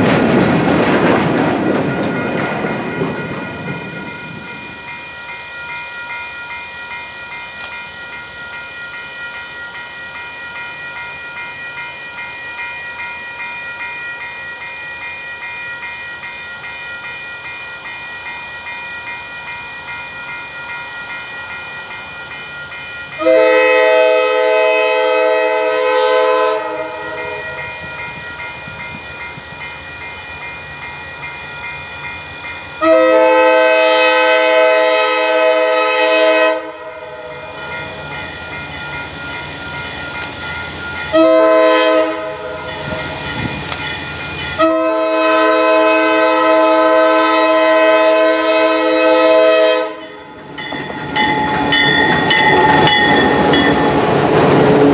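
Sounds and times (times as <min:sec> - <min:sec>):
train rumble: 0:00.0 - 0:54.9
locomotive air horn blasts: 0:23.2 - 0:27.6, 0:32.8 - 0:37.3, 0:41.1 - 0:42.6, 0:44.6 - 0:50.1.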